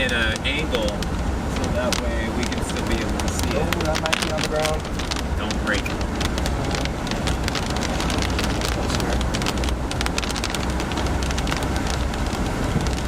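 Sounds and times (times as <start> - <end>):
car driving rumble: 0.0 - 13.0
rain hitting a car: 0.0 - 13.0.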